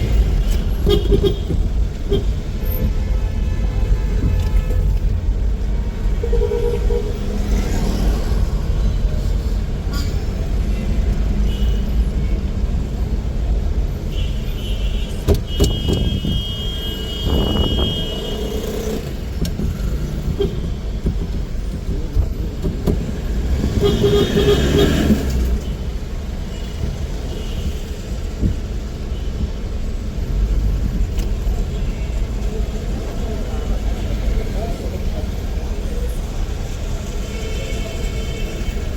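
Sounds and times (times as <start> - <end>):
traffic rumble: 0.0 - 38.9.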